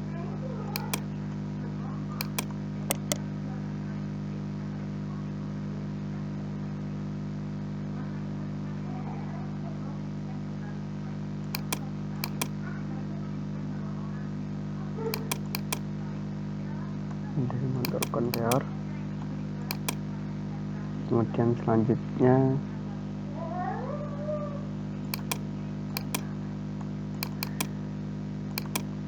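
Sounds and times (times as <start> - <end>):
computer mouse clicks: 0.8 - 1.1, 2.2 - 3.2, 11.6 - 12.6, 15.2 - 15.8, 17.9 - 18.6, 19.7 - 20.0, 25.2 - 25.4, 26.0 - 26.3, 27.2 - 27.7, 28.6 - 28.9.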